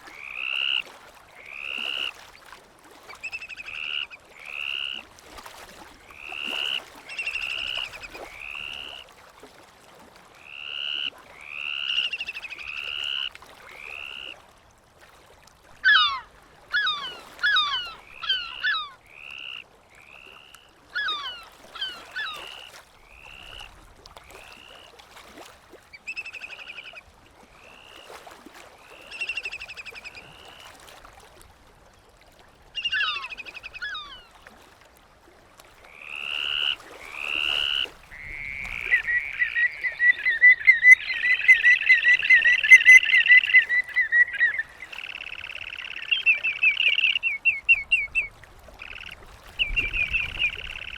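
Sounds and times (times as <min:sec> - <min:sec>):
seabirds calling: 0:00.0 - 0:02.2, 0:03.0 - 0:05.1, 0:06.1 - 0:09.0, 0:10.4 - 0:14.4, 0:15.7 - 0:23.7, 0:25.9 - 0:27.1, 0:32.8 - 0:34.4, 0:36.0 - 0:50.9.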